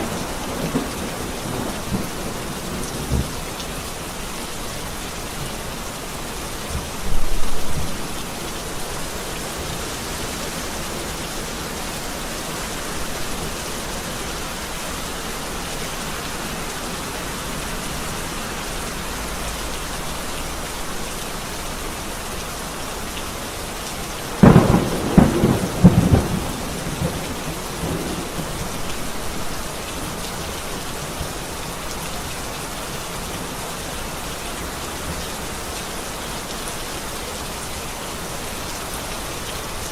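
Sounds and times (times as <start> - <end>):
crackling thunderclap: 0.0 - 3.4, 24.4 - 29.6
steady rain: 0.0 - 39.9
thunder clap: 24.4 - 28.5.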